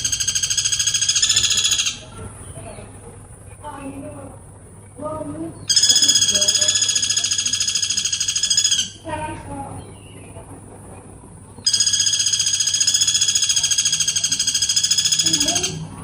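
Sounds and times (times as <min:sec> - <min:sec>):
woodpecker rattling trill: 0:00.0 - 0:03.0, 0:05.6 - 0:09.1, 0:11.6 - 0:16.0.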